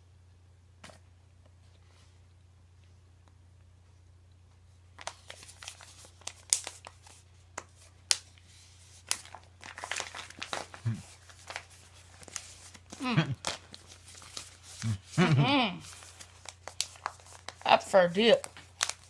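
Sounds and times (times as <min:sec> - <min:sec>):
tobacco pouch crinkling: 0:05.0 - 0:19.0.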